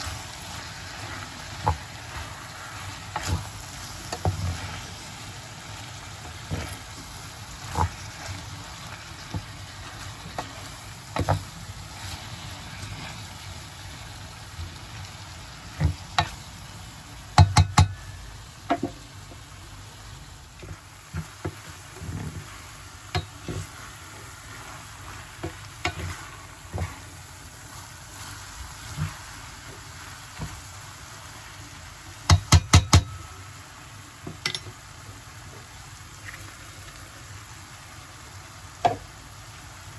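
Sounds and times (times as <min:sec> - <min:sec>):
food sizzling in hot oil: 0:00.0 - 0:39.9
utensil knocking against pan: 0:17.4 - 0:18.0, 0:32.3 - 0:33.2.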